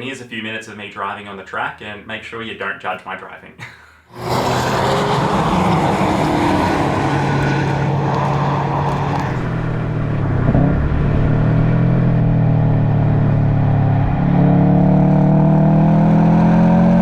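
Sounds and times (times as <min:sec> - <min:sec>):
turbocharged car engine driven hard: 0:04.2 - 0:17.0.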